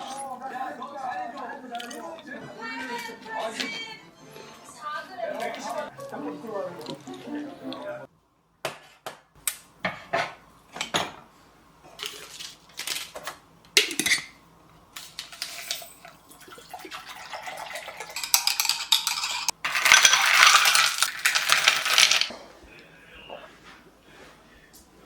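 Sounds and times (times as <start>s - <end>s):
utensils clinking on dishes: 13.8s - 14.4s, 15.0s - 22.3s.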